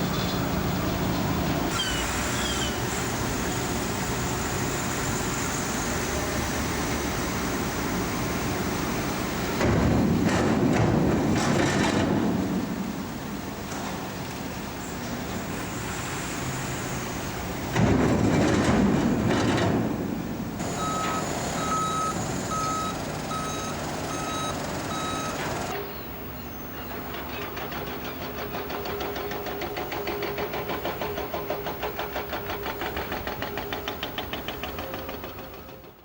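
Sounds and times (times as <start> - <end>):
engine noise: 0.0 - 36.0
reversing alarm beeping: 20.6 - 26.1.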